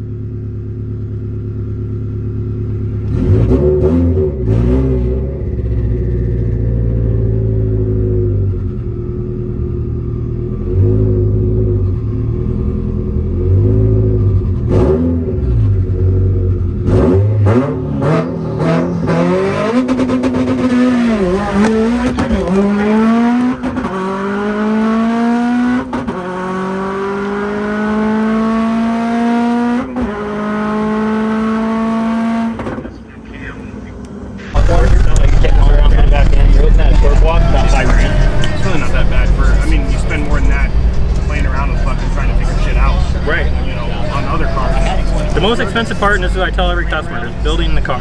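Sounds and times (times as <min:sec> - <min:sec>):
car engine idling and revving: 0:00.0 - 0:48.0
car accelerating through gears: 0:03.0 - 0:32.9, 0:33.9 - 0:48.0
sharp cracks: 0:34.6 - 0:38.6.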